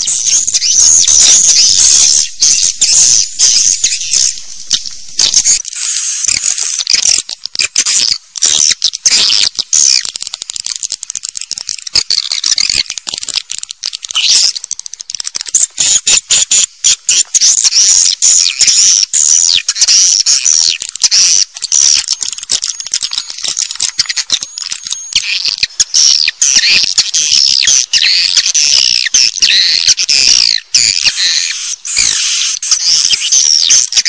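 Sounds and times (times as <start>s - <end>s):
rapid clicking: 0.0s - 15.9s
swiftlets twittering: 0.0s - 34.0s.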